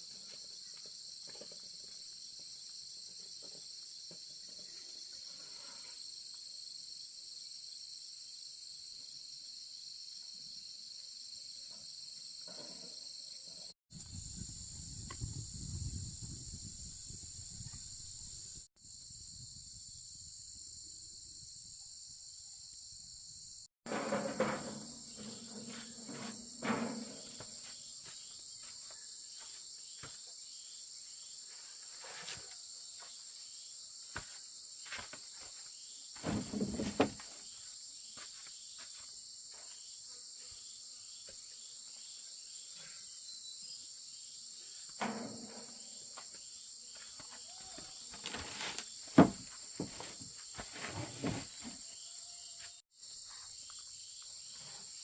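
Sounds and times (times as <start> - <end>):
high chirring insect chorus: 0.0 - 55.0
knocks and rustles: 23.9 - 28.3, 36.2 - 37.5, 44.9 - 51.9.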